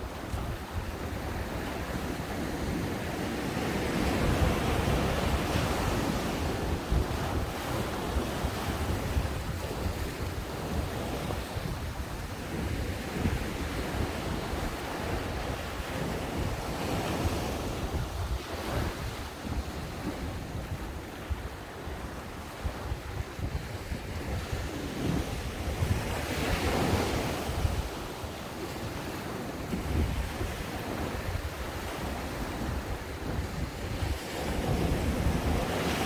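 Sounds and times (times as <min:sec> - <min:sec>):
ocean waves breaking: 0:00.0 - 0:36.0
wind rumbling on the microphone: 0:00.0 - 0:36.0.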